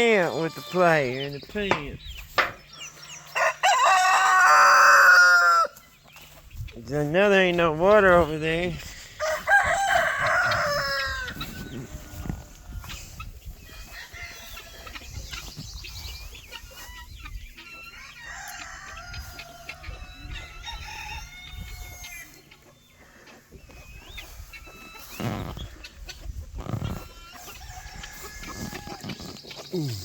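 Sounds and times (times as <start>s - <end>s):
chickens clucking: 0.0s - 30.0s
rooster crowing: 3.3s - 5.8s, 9.2s - 11.4s.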